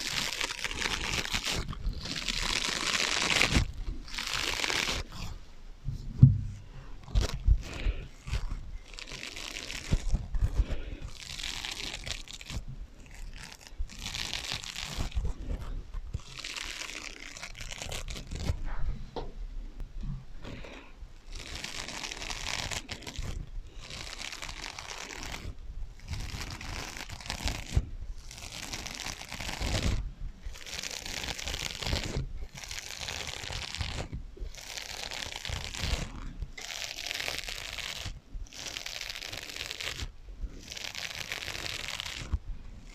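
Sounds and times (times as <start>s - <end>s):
scratching on sponges: 0.0s - 19.2s, 20.1s - 42.9s.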